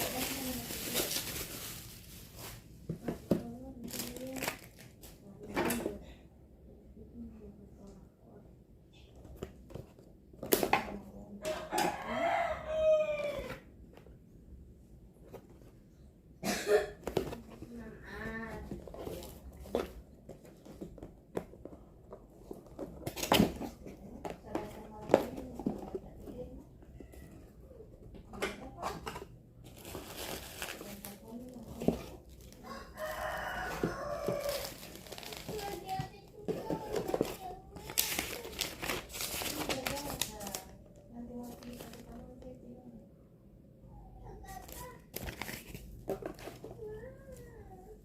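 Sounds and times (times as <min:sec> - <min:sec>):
packaging crinkling: 0:00.0 - 0:02.8, 0:29.7 - 0:40.8
rooster crowing: 0:11.5 - 0:13.6, 0:32.6 - 0:34.8.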